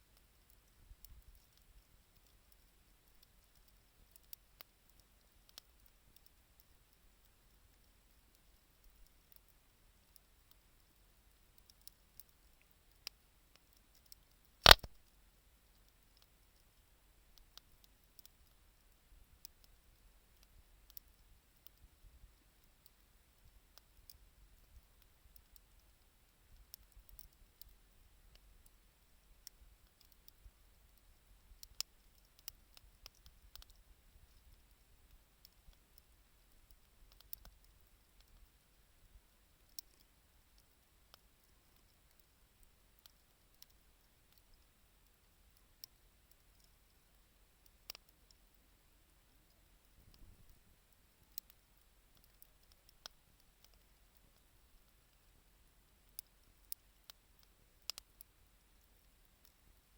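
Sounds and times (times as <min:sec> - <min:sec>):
wood fire crackling: 0:00.1 - 0:59.9
loud sharp pop: 0:14.7 - 0:14.9.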